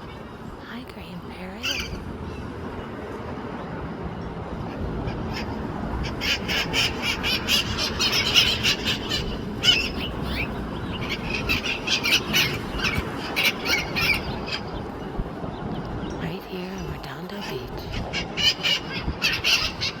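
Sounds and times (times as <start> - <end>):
parrots squawking: 1.4 - 2.0, 5.1 - 14.7, 17.8 - 20.0.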